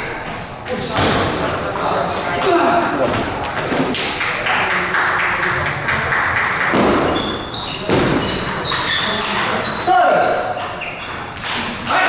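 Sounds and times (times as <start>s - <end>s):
busy hall background noise: 0.0s - 12.0s
table tennis balls clicking: 5.0s - 11.9s.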